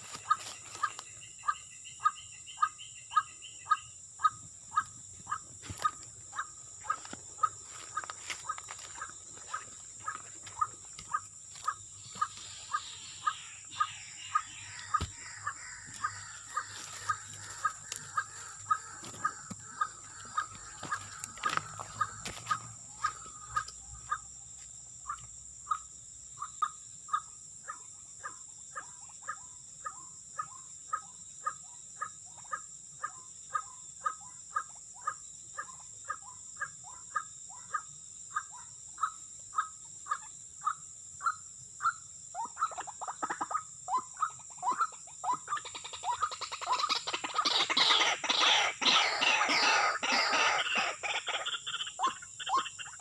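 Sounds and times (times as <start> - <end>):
waterhen calling: 5.8 - 24.2, 42.4 - 53.0.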